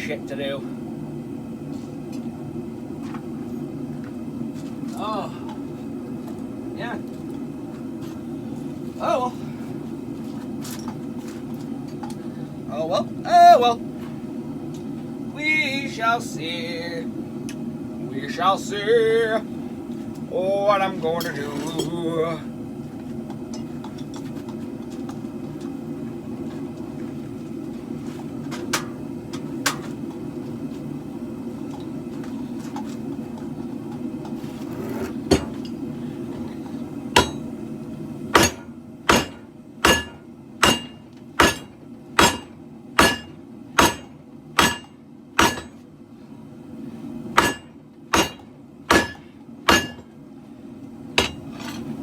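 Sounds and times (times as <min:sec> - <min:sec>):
hammer ringing on hot steel: 0:37.2 - 0:37.5, 0:38.3 - 0:45.8, 0:47.4 - 0:50.1, 0:51.2 - 0:51.5.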